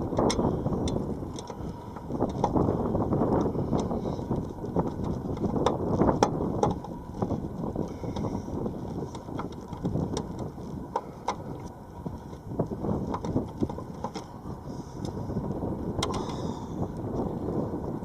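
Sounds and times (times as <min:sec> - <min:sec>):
wind buffeting microphone: 0:00.0 - 0:18.0
light clicks and knocks: 0:13.0 - 0:14.4.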